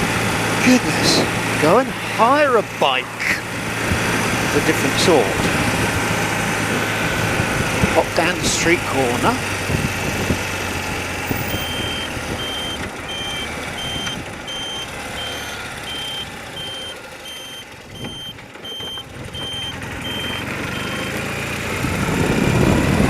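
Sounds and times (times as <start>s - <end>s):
motorcycle engine running: 0.0s - 23.0s
road noise: 0.0s - 23.0s
high electronic beeper pulses: 11.3s - 21.2s.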